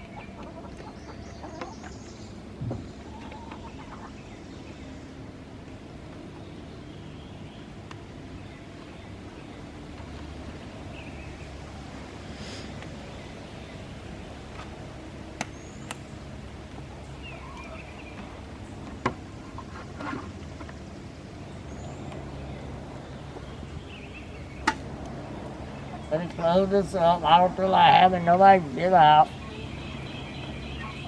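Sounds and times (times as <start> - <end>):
hens clucking: 0.0 - 8.1, 16.6 - 20.8, 24.6 - 31.0
steady low hum: 0.0 - 31.0.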